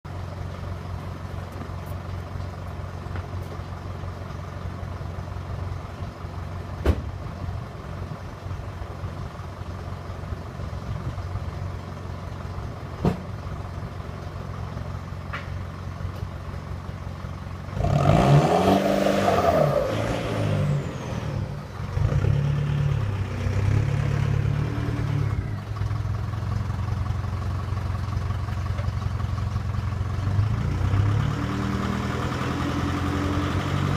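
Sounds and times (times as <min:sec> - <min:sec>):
diesel exhaust idling and revving: 0:00.0 - 0:33.9.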